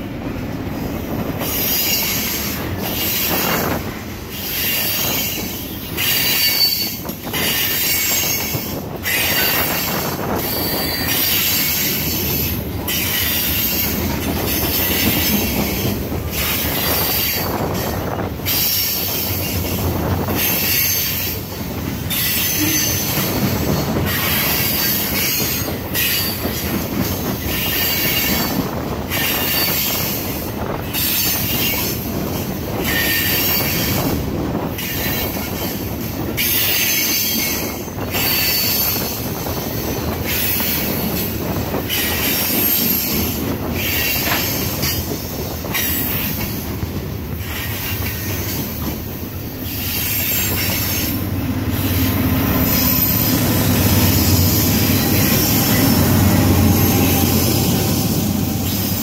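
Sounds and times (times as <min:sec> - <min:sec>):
steel wheels rumbling on rail: 0:00.0 - 0:59.0
high-pitched wheel squeal: 0:04.4 - 0:12.0, 0:22.1 - 0:26.5.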